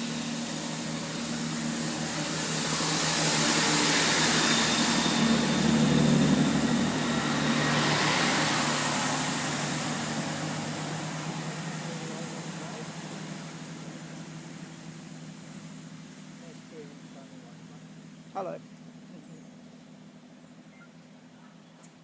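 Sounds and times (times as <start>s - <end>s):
rush of train passing: 0.0s - 16.4s
diesel engines droning: 0.0s - 22.0s.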